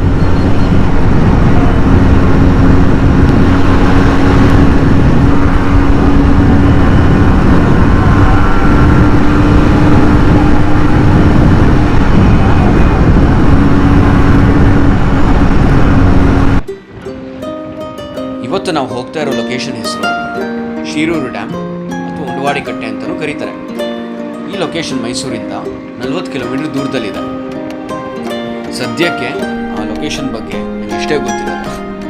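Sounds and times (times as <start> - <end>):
motorcycle engine running: 0.0 - 16.6
wind noise rushing: 0.0 - 19.1, 27.1 - 32.0
steady hum: 0.0 - 32.0.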